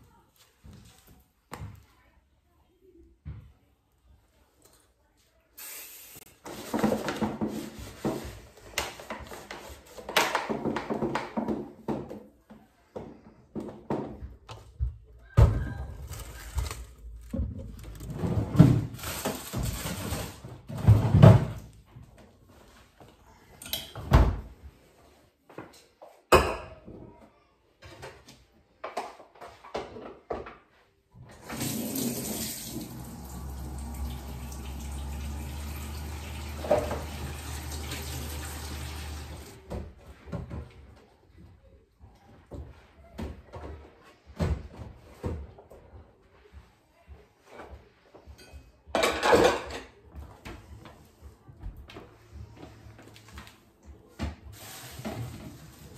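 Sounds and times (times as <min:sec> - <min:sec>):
household knocks and clatter: 0:06.5 - 0:22.1
tap water running into sink: 0:31.4 - 0:39.6.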